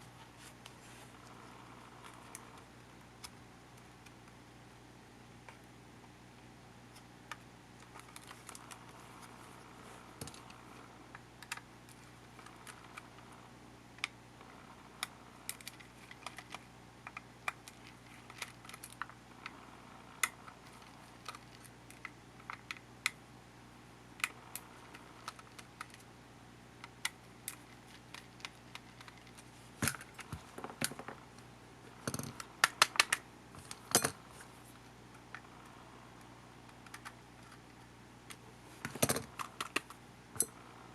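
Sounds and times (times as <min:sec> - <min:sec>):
faint steady hum: 0:00.0 - 0:40.9
clicks and taps of small parts: 0:32.0 - 0:34.2, 0:38.3 - 0:40.5.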